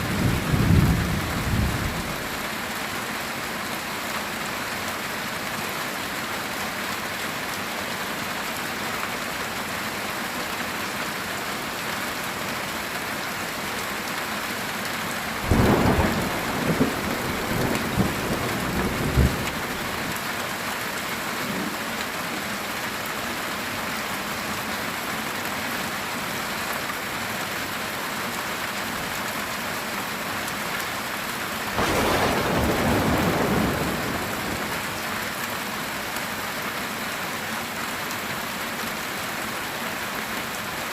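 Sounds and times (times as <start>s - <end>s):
thunder cracking and rumbling: 0.0s - 2.3s, 15.4s - 20.2s, 31.8s - 35.0s
heavy rain on a tin roof: 0.0s - 40.9s.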